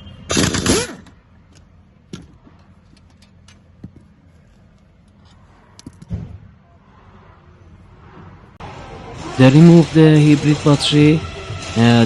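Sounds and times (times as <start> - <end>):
power tool burst: 0.3 - 1.1.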